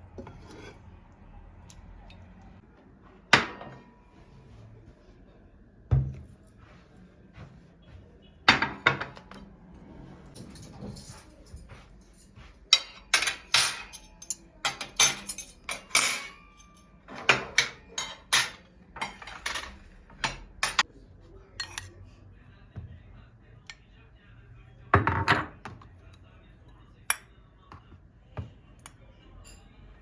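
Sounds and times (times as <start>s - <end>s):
cutlery and dishes clinking: 10.3s - 20.9s, 21.6s - 22.0s.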